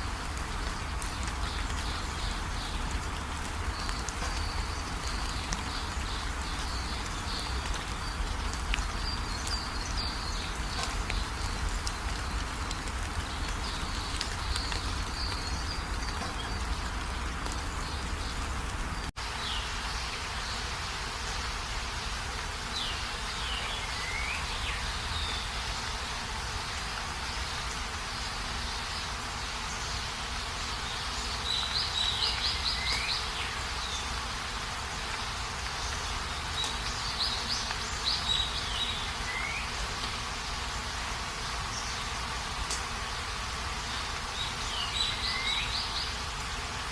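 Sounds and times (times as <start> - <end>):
birds calling: 0.0 - 21.7, 43.0 - 46.3
steady rain falling: 0.0 - 46.9.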